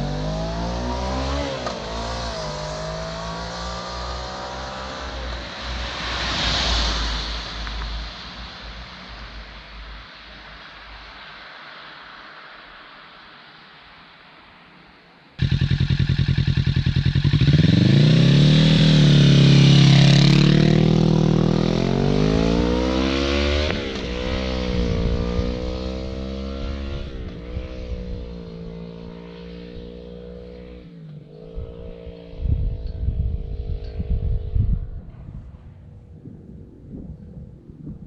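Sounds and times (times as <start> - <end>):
motorcycle engine accelerating: 0.0 - 5.6, 15.4 - 35.1.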